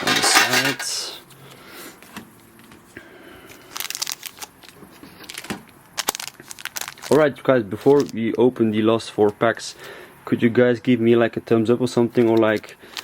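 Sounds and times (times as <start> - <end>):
plastic packaging crinkling: 3.5 - 8.2.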